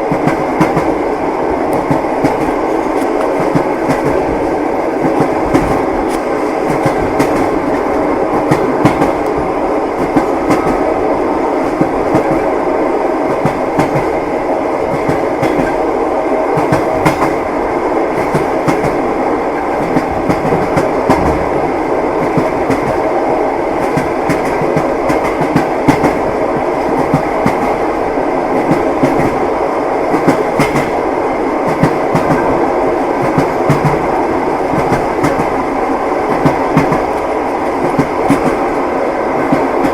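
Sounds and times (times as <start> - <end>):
train rumbling on rails: 0.0 - 39.9
wheels clacking over rail joints: 14.9 - 15.8.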